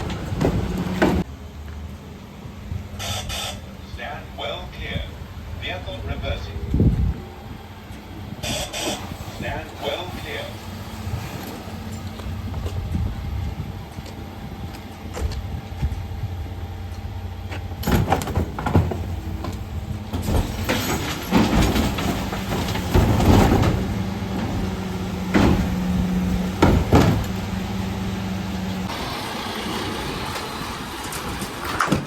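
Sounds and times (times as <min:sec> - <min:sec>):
bins banging and clattering: 0:00.0 - 0:01.3, 0:17.5 - 0:32.0
truck engine humming: 0:00.0 - 0:32.0.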